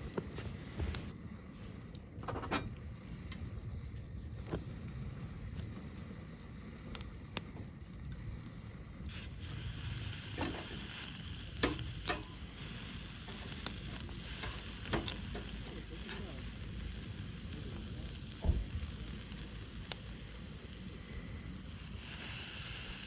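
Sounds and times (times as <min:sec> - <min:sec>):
food sizzling: 0:04.4 - 0:23.0
utensils clicking and tapping: 0:11.6 - 0:12.4.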